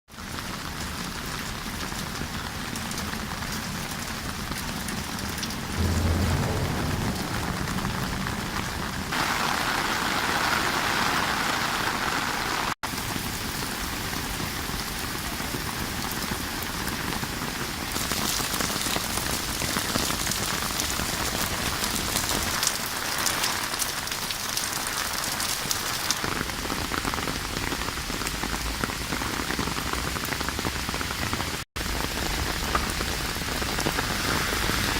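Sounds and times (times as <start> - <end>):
rain falling: 0.1 - 34.9
raindrop hits: 2.0 - 12.8.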